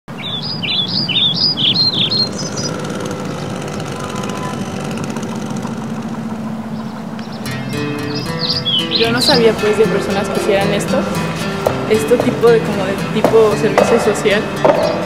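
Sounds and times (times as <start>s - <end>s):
bird singing chirping notes: 0.1s - 15.0s
steady low hum: 0.5s - 8.7s.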